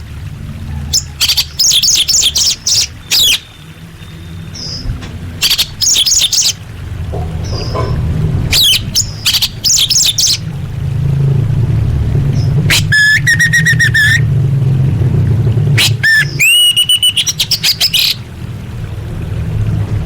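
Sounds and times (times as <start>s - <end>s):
thrush chirping: 0.7s - 10.8s, 12.3s - 14.3s, 15.8s - 18.3s
steady low hum: 2.2s - 16.4s.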